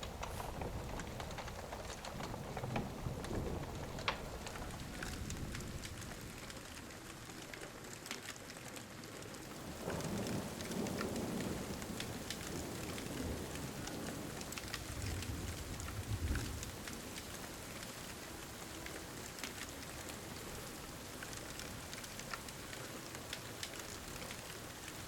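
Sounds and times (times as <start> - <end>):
thunder rumbling: 0.0 - 7.2, 9.6 - 17.1
pouring rain: 0.0 - 25.0
sharp ticks and crackles: 0.0 - 25.0.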